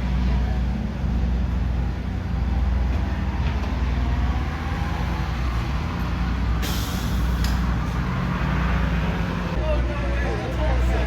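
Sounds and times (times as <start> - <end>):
air hiss burst: 6.6 - 7.6.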